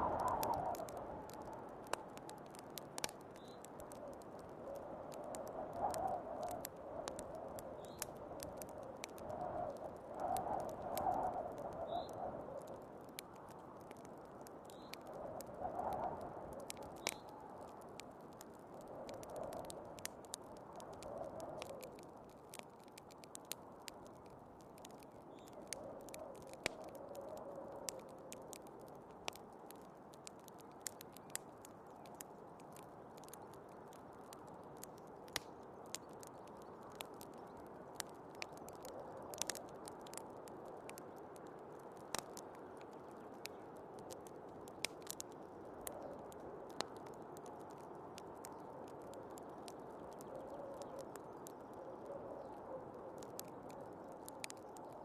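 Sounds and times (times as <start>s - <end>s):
snowstorm wind: 0.0s - 1.7s
wood fire crackling and popping: 0.0s - 55.0s.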